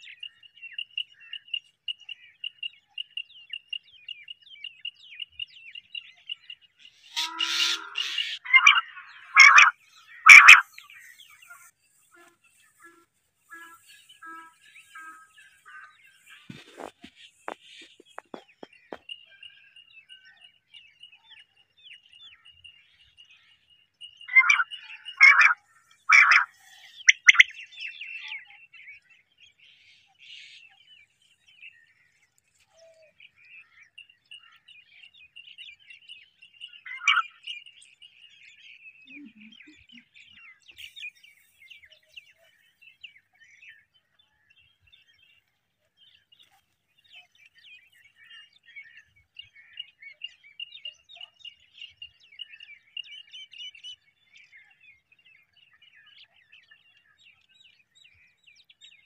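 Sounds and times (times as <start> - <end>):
birds chirping and twittering: 0.0 - 59.0
loud bird call: 7.1 - 16.9, 24.3 - 27.5.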